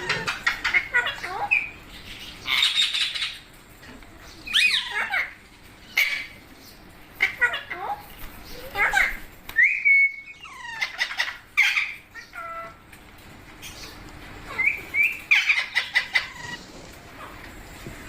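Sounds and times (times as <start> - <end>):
parrots making shrill calls: 0.0 - 3.5, 4.4 - 6.4, 7.2 - 12.8, 14.4 - 16.6.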